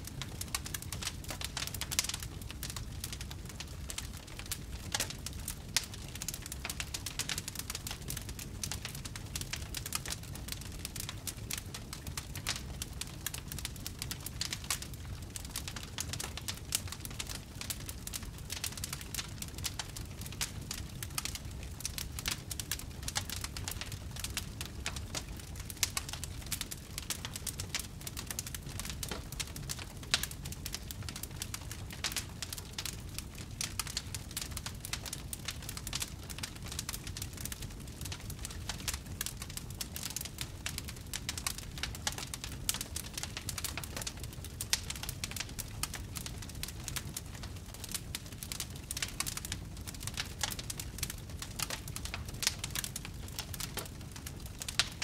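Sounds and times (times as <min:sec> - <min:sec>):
low rumble of flames: 0:00.0 - 0:55.0
wood fire crackling: 0:00.0 - 0:55.0.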